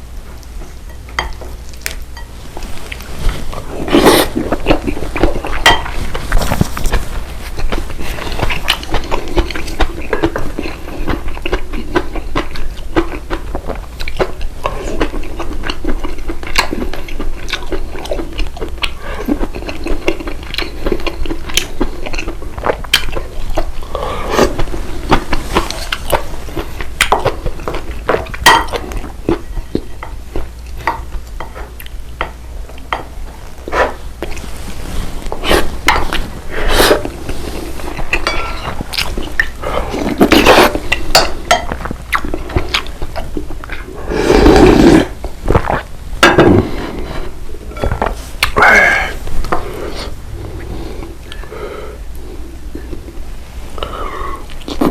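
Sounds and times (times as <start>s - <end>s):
person chewing and biting: 1.7s - 32.0s, 32.8s - 45.9s
cutlery clinking on dishes: 38.2s - 38.8s.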